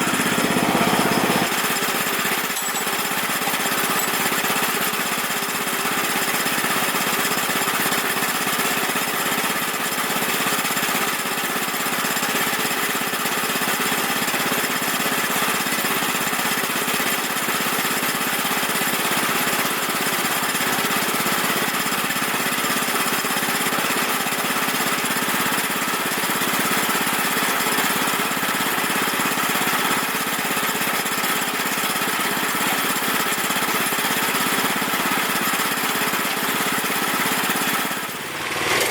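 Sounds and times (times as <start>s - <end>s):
band sawmill cutting log: 0.0s - 2.5s, 36.4s - 38.9s.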